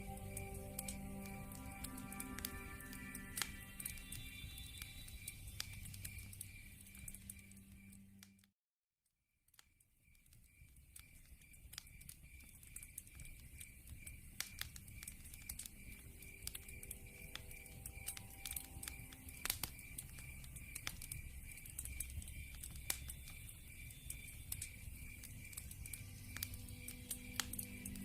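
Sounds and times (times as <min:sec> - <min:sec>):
steady high chirp: 0:00.0 - 0:08.2, 0:15.0 - 0:28.0
wood fire crackling: 0:00.0 - 0:08.4, 0:09.6 - 0:28.0.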